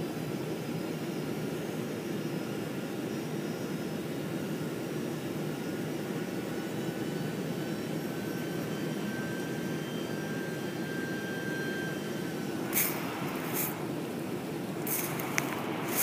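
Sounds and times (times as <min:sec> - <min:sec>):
faint steady whine: 0:00.0 - 0:16.0
jet engine and airflow roar: 0:00.0 - 0:16.0.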